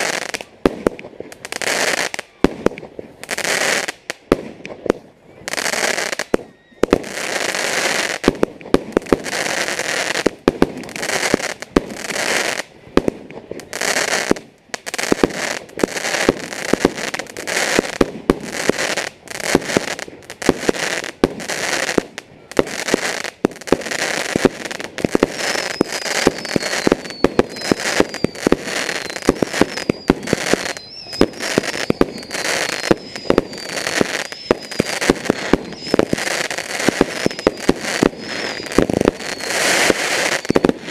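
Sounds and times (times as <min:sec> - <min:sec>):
fireworks bangs and crackles: 0:00.0 - 0:40.9
high whistle sliding down: 0:25.3 - 0:40.9.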